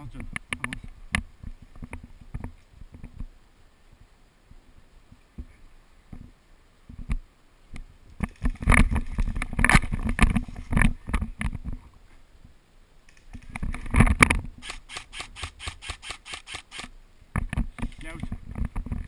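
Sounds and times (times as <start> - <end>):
airsoft gun rapid fire: 14.6 - 16.9.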